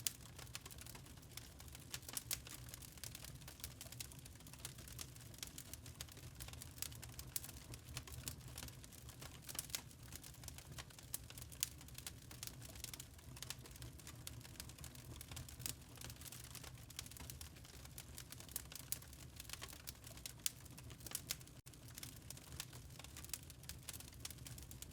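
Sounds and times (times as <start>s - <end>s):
wood fire crackling: 0.0s - 24.9s.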